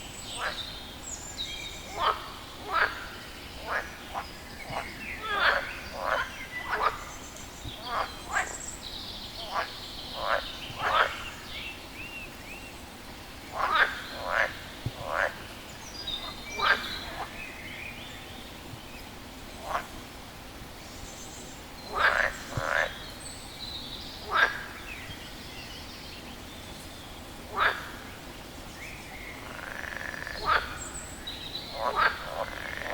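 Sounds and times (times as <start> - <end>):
frog croaking: 1.9 - 7.1, 9.4 - 11.2, 13.5 - 15.4, 16.2 - 17.4, 21.9 - 23.0, 24.3 - 24.7, 27.5 - 28.0, 29.4 - 30.9, 31.7 - 32.9.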